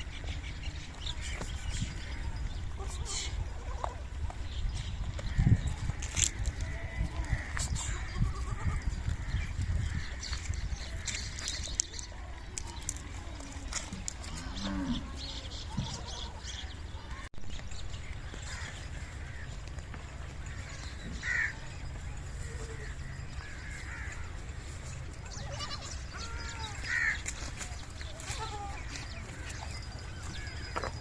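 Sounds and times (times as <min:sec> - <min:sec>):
goat kids bleating: 0:06.0 - 0:09.2, 0:25.3 - 0:29.6.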